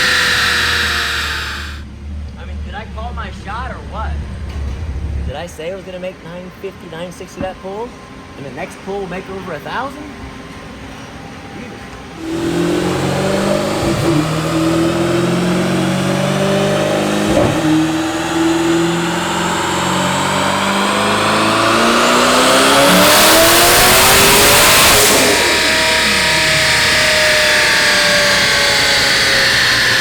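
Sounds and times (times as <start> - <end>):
car engine revving at full throttle: 0.0 - 2.0, 12.2 - 30.0.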